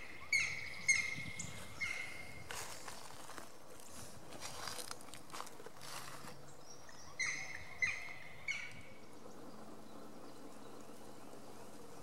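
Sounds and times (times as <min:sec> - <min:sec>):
footsteps on dry leaves: 0:01.5 - 0:06.4.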